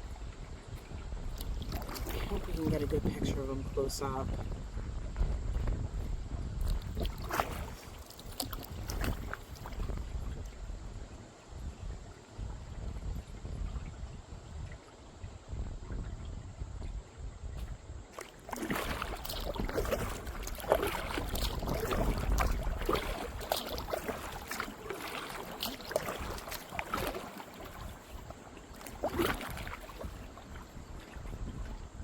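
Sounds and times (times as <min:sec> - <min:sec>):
kayak paddle splashing in water: 0:00.0 - 0:04.3, 0:05.2 - 0:11.0, 0:17.6 - 0:32.0
water trickling off paddle: 0:00.0 - 0:04.6, 0:06.5 - 0:12.4, 0:18.1 - 0:32.0
wind rumble on microphone: 0:00.0 - 0:32.0.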